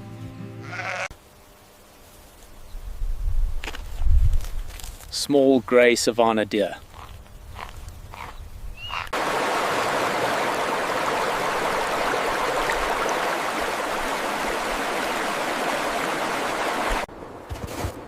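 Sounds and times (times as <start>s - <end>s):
rushing water: 9.1s - 17.1s.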